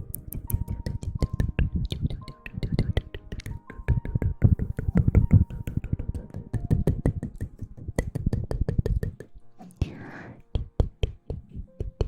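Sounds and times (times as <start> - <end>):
close tapping and clicking: 0.0 - 9.4, 10.5 - 12.0
soft background music: 0.0 - 12.0.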